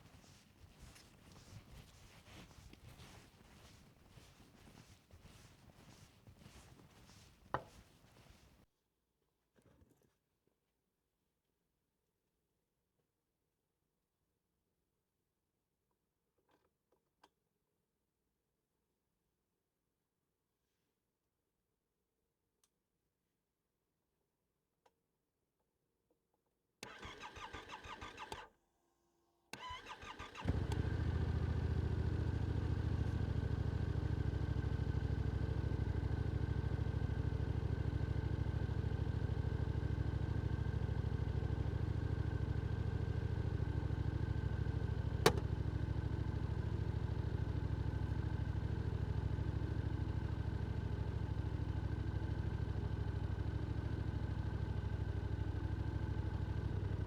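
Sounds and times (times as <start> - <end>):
motorcycle engine idling: 30.5 - 57.0.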